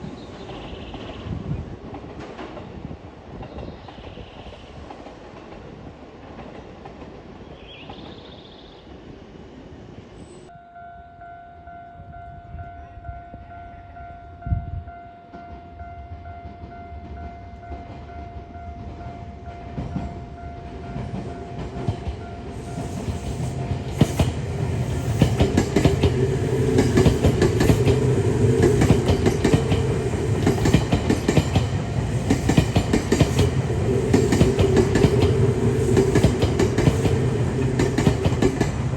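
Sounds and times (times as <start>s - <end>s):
electric train passing: 0.0s - 38.9s
wheels clacking over rail joints: 19.7s - 38.9s.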